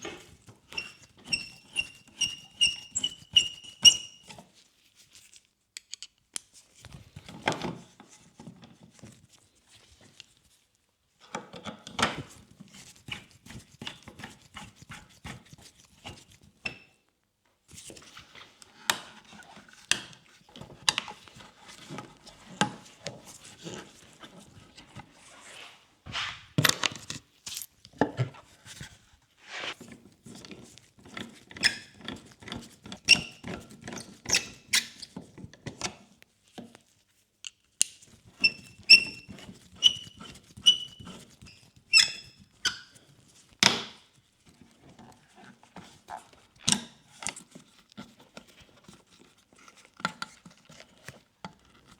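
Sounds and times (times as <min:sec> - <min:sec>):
clicks and taps of tools: 0:05.8 - 0:07.0.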